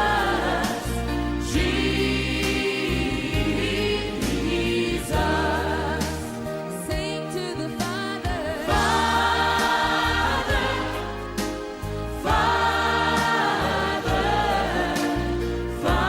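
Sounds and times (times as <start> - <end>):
low bass notes: 0.0 - 6.6
choir singing held chords: 0.0 - 16.0.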